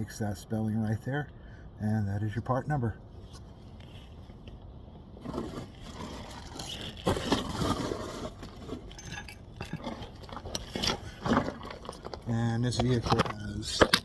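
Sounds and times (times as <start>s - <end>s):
metal tools clinking and scraping: 8.2s - 14.0s.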